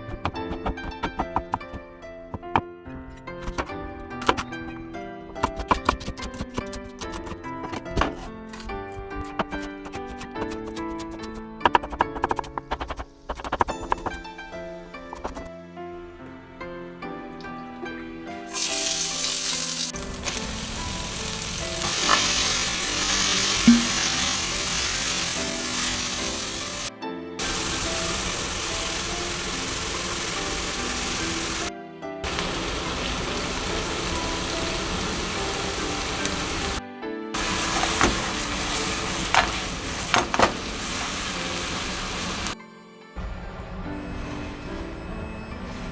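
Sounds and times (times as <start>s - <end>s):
background music: 0.0s - 45.9s
food sizzling in hot oil: 18.5s - 36.8s, 37.4s - 42.6s.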